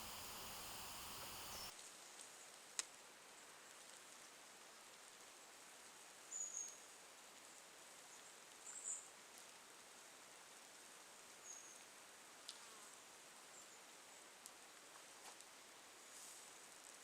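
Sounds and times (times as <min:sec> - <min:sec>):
short high-pitched chirps: 0:00.0 - 0:01.7
steady low hiss: 0:00.0 - 0:01.7.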